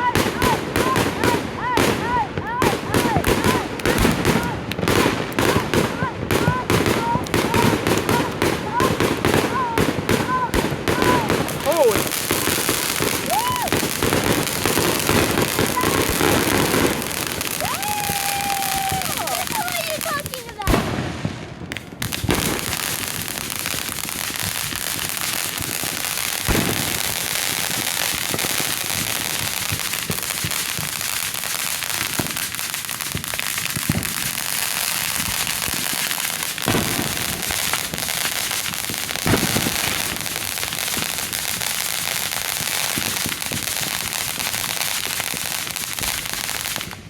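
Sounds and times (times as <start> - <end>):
fireworks bangs: 0.0 - 47.0
fireworks crackling: 0.0 - 47.0.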